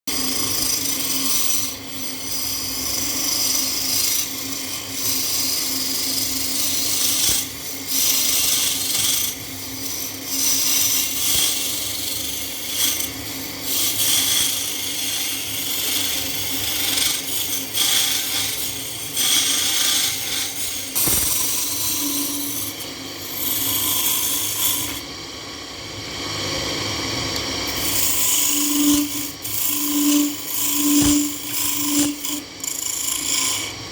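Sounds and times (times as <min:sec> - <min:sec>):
tool scraping spinning wood: 0:00.3 - 0:25.1, 0:27.6 - 0:33.9
lathe motor hum: 0:11.6 - 0:33.9.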